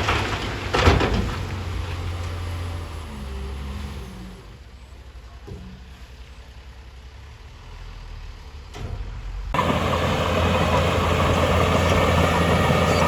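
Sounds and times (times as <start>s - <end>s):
heavy diesel engine droning: 9.5s - 13.0s.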